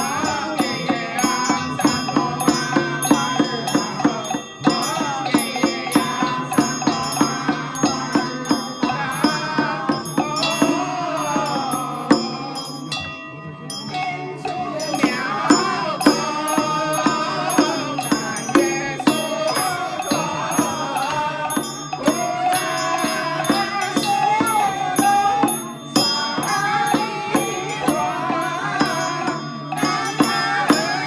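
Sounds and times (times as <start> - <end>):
steady percussion strokes: 0.0 - 31.0
wavering ritual melody: 0.0 - 31.0.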